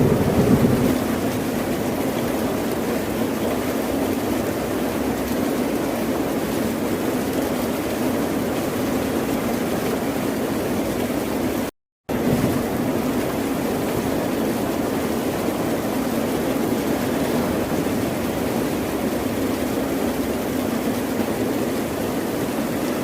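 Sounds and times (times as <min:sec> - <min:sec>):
ocean surf washing: 0:00.0 - 0:04.5, 0:10.8 - 0:23.0.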